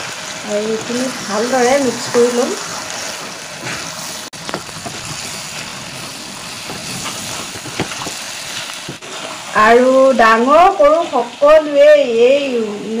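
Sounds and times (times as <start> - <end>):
chicken sizzling in pan: 0.0 - 13.0
spatula scraping and tapping pan: 6.6 - 9.0.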